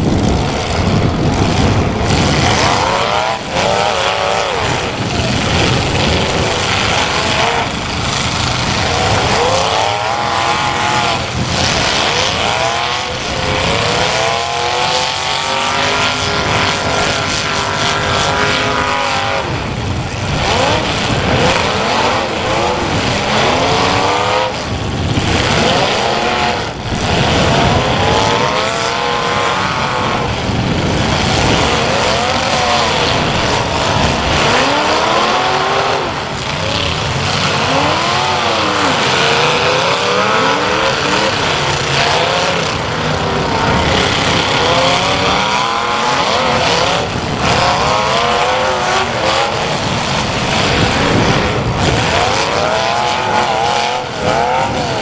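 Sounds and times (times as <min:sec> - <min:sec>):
car engines revving hard: 0:00.0 - 0:55.0.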